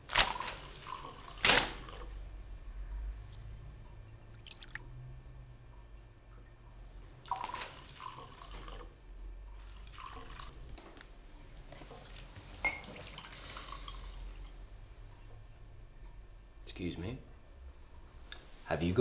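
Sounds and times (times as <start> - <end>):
faint low hum: 0.0 - 19.0
water splashing and dripping: 0.1 - 2.2, 4.3 - 4.9, 7.2 - 8.8.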